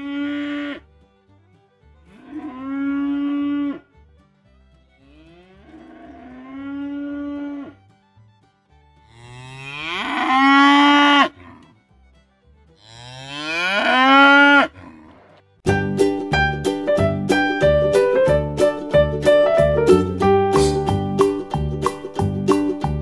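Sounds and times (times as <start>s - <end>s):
bull mooing: 0.0s - 0.8s, 2.1s - 3.9s, 5.0s - 7.8s, 9.1s - 11.8s, 12.8s - 15.4s
piano tune: 15.7s - 23.0s.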